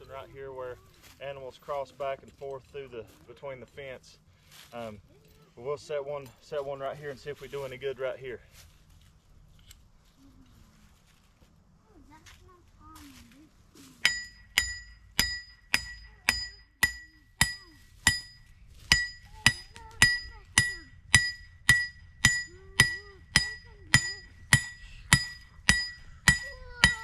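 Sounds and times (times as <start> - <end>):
hammer striking metal stake: 14.0 - 27.0.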